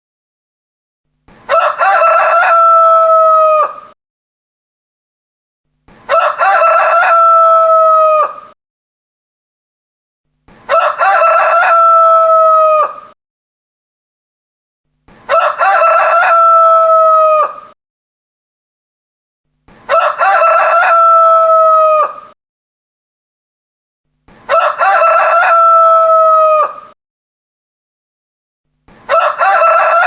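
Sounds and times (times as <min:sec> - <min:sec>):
rooster crowing: 0:01.5 - 0:04.0, 0:06.1 - 0:08.6, 0:10.7 - 0:13.2, 0:15.3 - 0:17.8, 0:19.9 - 0:22.4, 0:24.5 - 0:27.0, 0:29.1 - 0:30.0.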